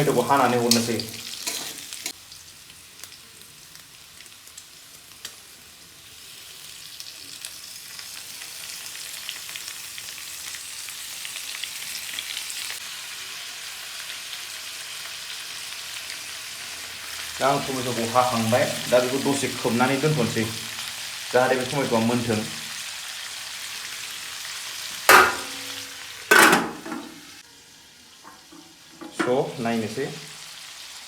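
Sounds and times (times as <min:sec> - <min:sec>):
food sizzling in a frying pan: 0:00.0 - 0:31.0.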